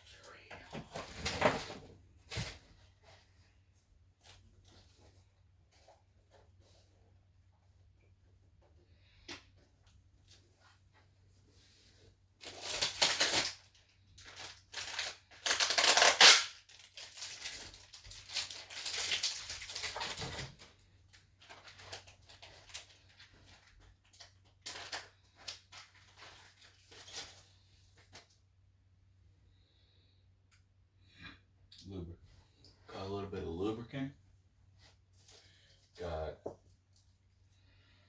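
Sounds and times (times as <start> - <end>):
plastic packaging crinkling: 12.4 - 28.4.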